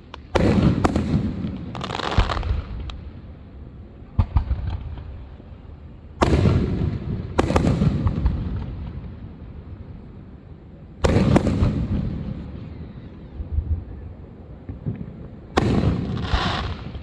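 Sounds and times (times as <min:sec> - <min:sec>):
fireworks booming: 0:00.0 - 0:03.0, 0:06.2 - 0:09.3, 0:11.0 - 0:13.2, 0:14.6 - 0:17.0.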